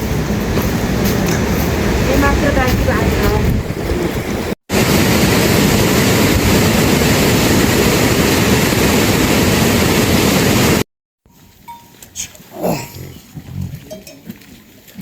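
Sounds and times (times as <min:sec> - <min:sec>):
rushing water roar: 0:00.0 - 0:10.8.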